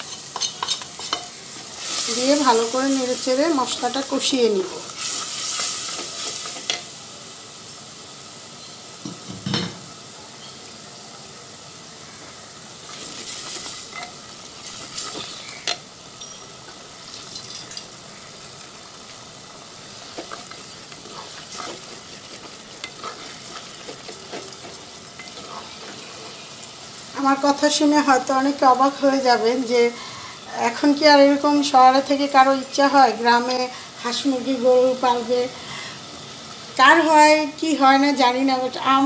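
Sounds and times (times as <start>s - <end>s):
paste sizzling in hot oil: 0.0s - 39.0s
wooden spatula scraping a pot: 20.0s - 26.5s.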